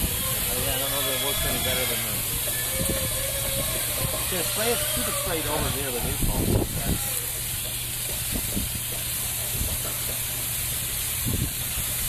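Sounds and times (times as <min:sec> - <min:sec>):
motor hum: 0:00.0 - 0:07.8
pressure washer spray hiss: 0:00.0 - 0:12.0.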